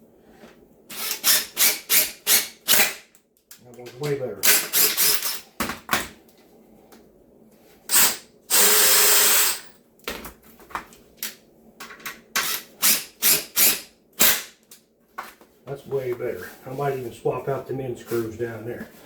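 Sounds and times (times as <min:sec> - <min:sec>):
power drill driving screw into wood: 0:00.9 - 0:03.1, 0:04.4 - 0:05.4, 0:07.9 - 0:09.7, 0:12.4 - 0:14.6.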